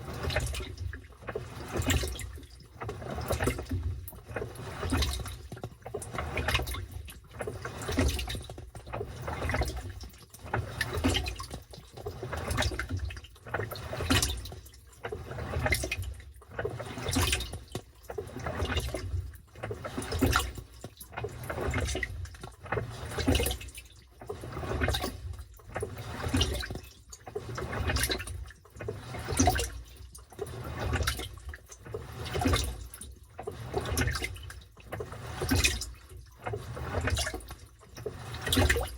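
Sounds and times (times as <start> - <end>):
washing machine sloshing water: 0.0 - 38.9.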